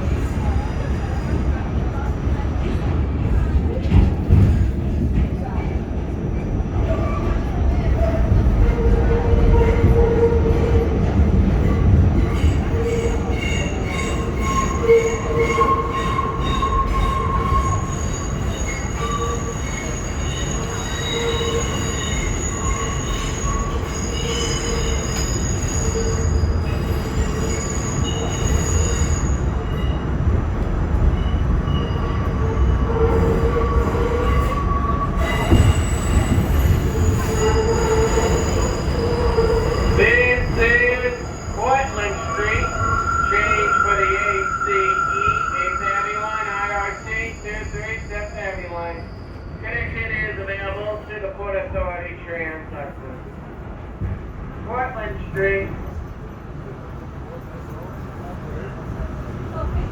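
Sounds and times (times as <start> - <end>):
subway train rumbling in tunnel: 0.0 - 59.9
train wheels squealing: 11.6 - 30.2, 31.0 - 50.3.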